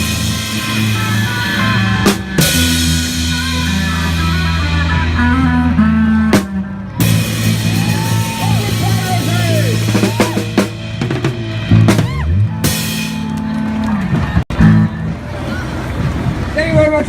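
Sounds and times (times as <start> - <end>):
electric guitar bending notes: 0.0 - 16.6
bass guitar: 0.0 - 17.0
drum kit with cymbal crashes: 6.3 - 13.4.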